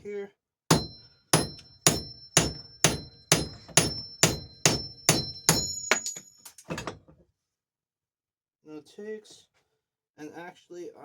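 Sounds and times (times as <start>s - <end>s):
hammer striking knife on nail: 0.7s - 6.3s
high metallic ring: 0.7s - 6.5s.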